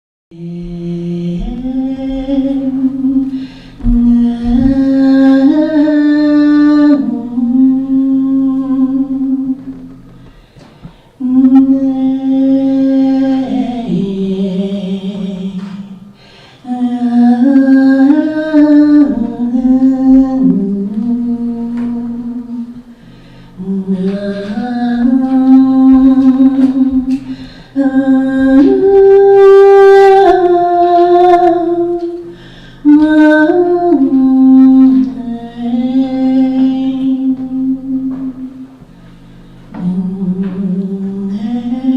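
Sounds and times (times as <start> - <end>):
person singing wordlessly: 0.3 - 9.8, 16.6 - 22.8, 23.6 - 38.5, 39.8 - 41.9.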